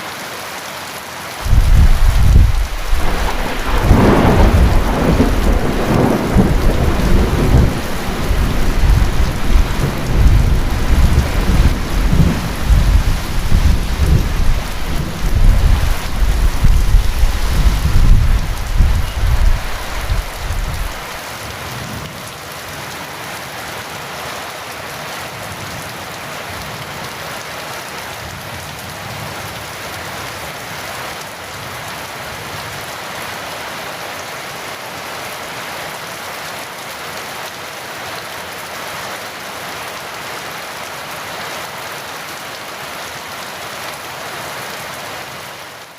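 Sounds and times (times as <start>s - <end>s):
heavy rain: 0.0s - 45.9s
deep thunder rumble: 1.5s - 21.1s.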